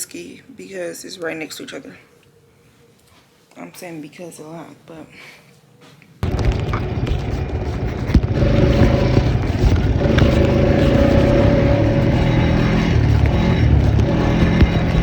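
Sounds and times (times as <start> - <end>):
atv engine running: 6.2 - 15.0
steady whine: 6.2 - 15.0.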